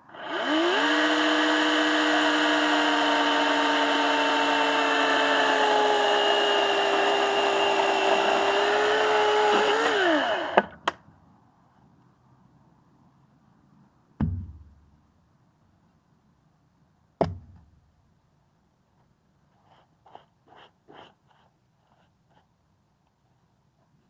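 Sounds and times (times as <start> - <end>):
electric saw motor running: 0.0 - 10.7.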